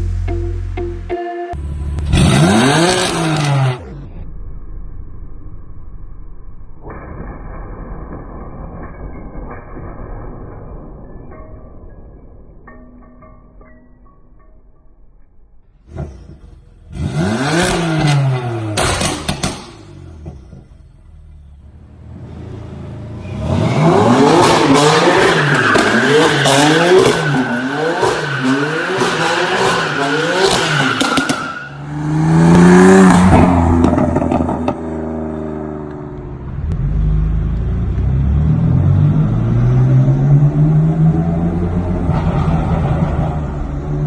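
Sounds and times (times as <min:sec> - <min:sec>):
car engine revving: 0:01.6 - 0:04.2, 0:15.9 - 0:20.6, 0:21.7 - 0:44.0.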